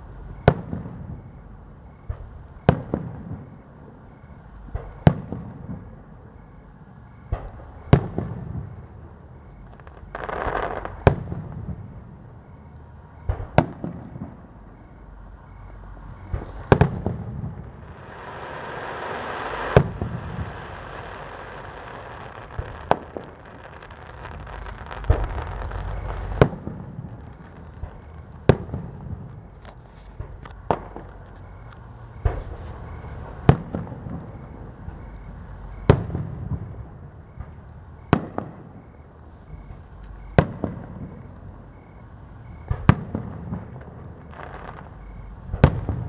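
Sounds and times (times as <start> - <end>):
rolling echo: 0.0 - 46.0
firework shells booming: 9.6 - 12.2, 16.2 - 31.6, 32.2 - 41.8, 42.6 - 46.0
firework hiss: 16.3 - 16.8, 17.8 - 28.6.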